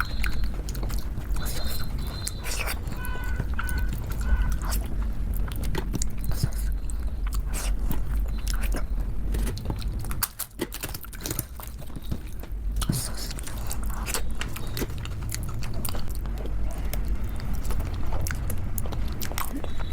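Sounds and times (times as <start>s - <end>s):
mouth clicks: 0.0s - 10.4s
steady low hum: 0.0s - 19.9s
wet chewing and lip smacks: 0.0s - 19.9s.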